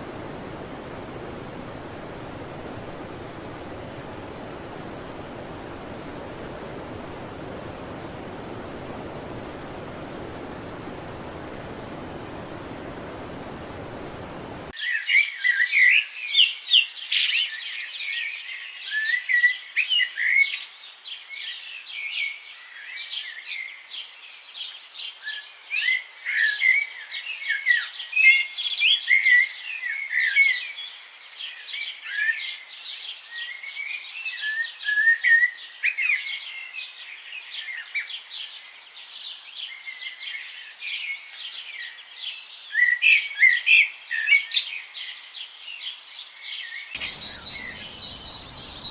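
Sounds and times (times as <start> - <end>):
birds chirping: 0.0 - 14.7, 47.0 - 48.9.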